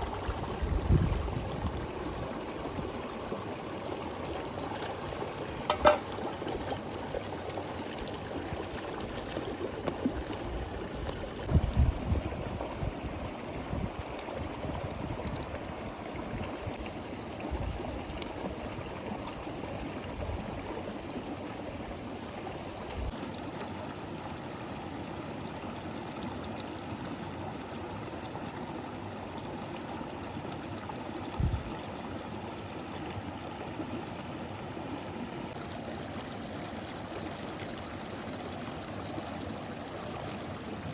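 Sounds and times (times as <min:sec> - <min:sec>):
river flowing: 0:01.8 - 0:11.4.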